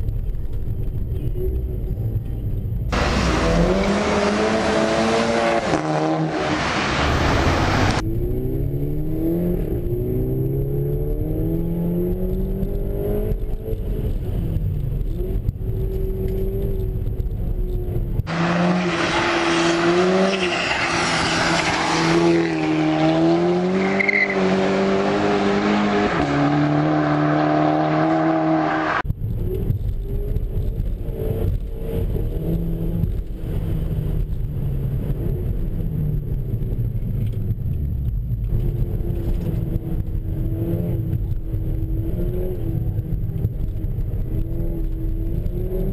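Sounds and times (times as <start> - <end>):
car engine revving: 2.9 - 37.3.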